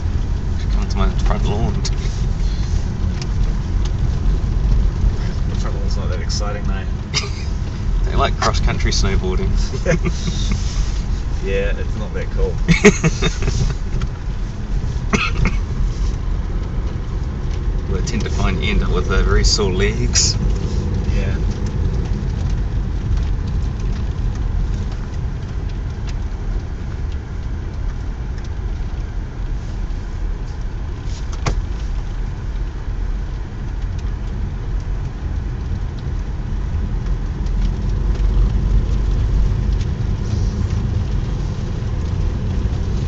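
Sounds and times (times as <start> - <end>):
car engine and tyres rumbling: 0.0 - 43.0.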